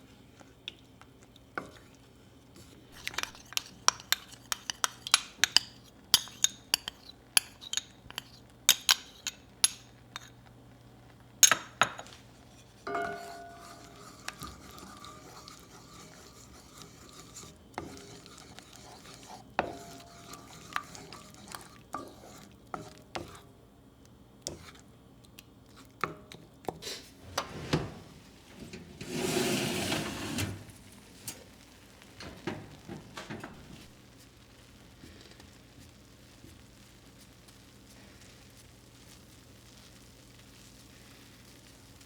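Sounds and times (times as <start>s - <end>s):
dishes and utensils clinking: 3.0s - 10.3s, 12.8s - 17.2s, 19.1s - 21.4s, 32.2s - 33.9s
rubbing or scraping noise: 28.7s - 30.7s.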